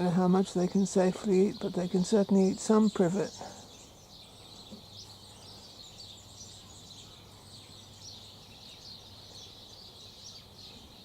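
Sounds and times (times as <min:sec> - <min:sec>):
birds chirping and twittering: 0:00.0 - 0:11.0.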